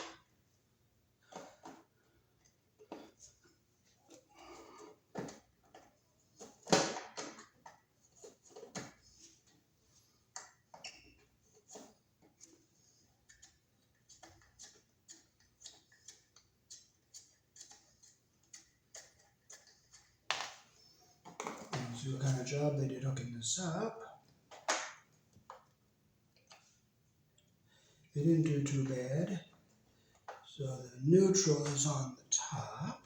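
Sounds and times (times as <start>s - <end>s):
screwdriver scraping: 13.3s - 20.1s.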